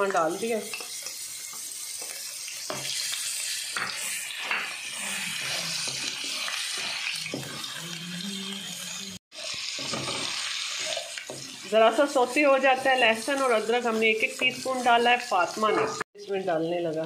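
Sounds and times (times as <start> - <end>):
garlic sizzling in hot oil: 0.0 - 17.0
spatula scraping a wok: 0.4 - 11.8.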